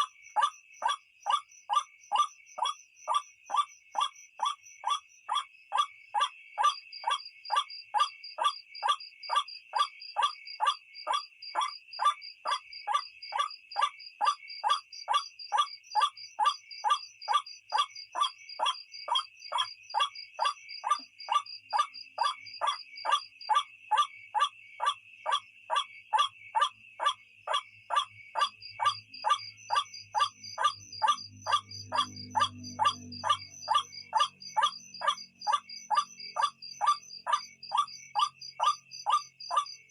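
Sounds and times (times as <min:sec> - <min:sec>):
high insect drone: 0:27.4 - 0:39.9.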